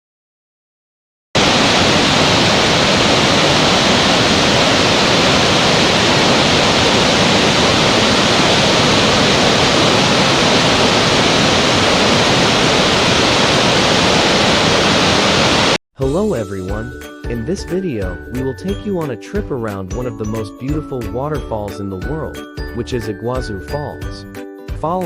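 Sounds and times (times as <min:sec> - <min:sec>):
waterfall roaring: 0:01.4 - 0:15.8.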